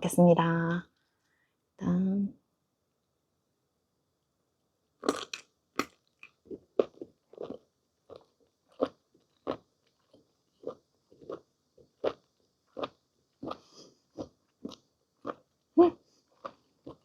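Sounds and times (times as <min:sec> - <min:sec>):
moist chewy chewing: 0:05.0 - 0:15.6, 0:16.3 - 0:17.0.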